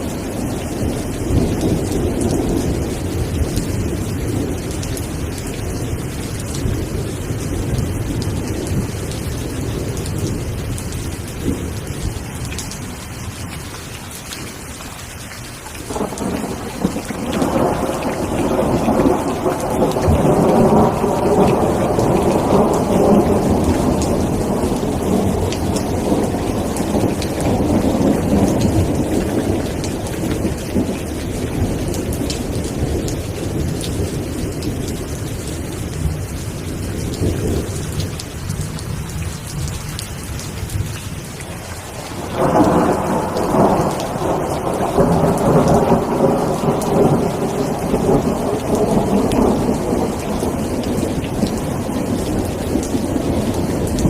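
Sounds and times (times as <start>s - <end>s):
steady rain falling: 0.0s - 54.0s
thunder rolling: 15.9s - 35.4s, 41.8s - 54.0s.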